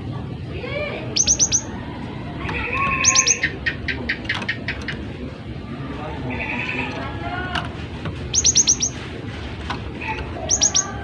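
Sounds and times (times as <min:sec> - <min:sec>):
bird repeated notes: 0:01.1 - 0:01.8, 0:02.8 - 0:05.0, 0:08.2 - 0:09.1, 0:10.2 - 0:11.0
bird high sharp notes: 0:01.2 - 0:01.7, 0:08.3 - 0:09.0, 0:10.4 - 0:11.0
bird buzzy churr: 0:08.3 - 0:09.0, 0:10.2 - 0:11.0.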